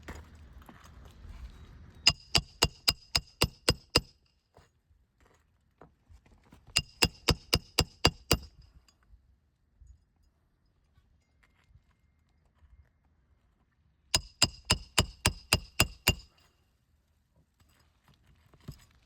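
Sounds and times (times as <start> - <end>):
hammer striking metal: 2.1 - 4.1, 6.8 - 8.6, 14.2 - 16.4.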